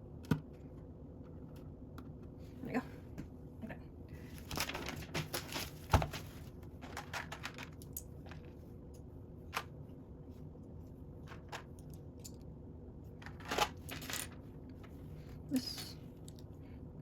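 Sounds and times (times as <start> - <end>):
pieces rustling: 4.3 - 8.7, 11.2 - 12.4, 13.2 - 15.0.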